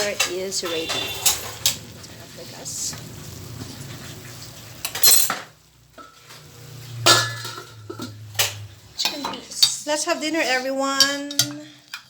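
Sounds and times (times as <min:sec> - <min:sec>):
metal cookware clanking: 0:00.0 - 0:02.2, 0:04.8 - 0:12.0.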